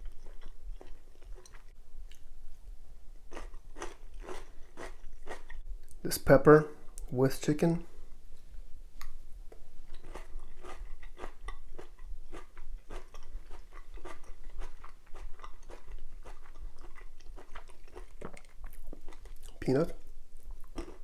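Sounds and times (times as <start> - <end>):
person chewing crunchy food: 0.0 - 2.3, 3.2 - 5.6, 9.0 - 21.0.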